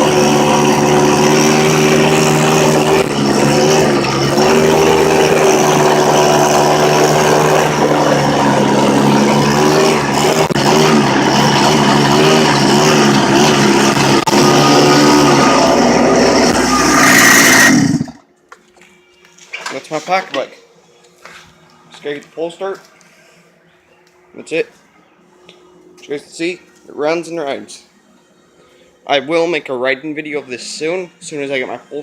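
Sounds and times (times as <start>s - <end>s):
small two-stroke engine running: 0.0s - 18.2s.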